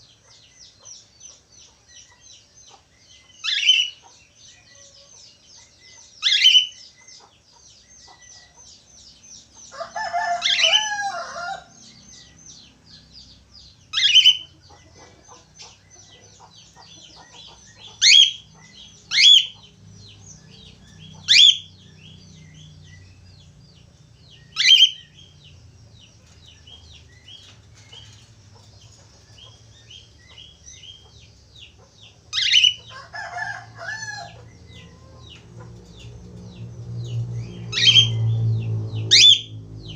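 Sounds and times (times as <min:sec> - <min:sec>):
budgerigars warbling: 0:01.6 - 0:38.3, 0:39.0 - 0:39.9
shrill bird calls: 0:03.3 - 0:07.0, 0:09.6 - 0:12.4, 0:13.9 - 0:14.7, 0:16.8 - 0:22.8, 0:24.4 - 0:25.4, 0:32.3 - 0:35.2, 0:37.5 - 0:38.3, 0:39.1 - 0:39.6.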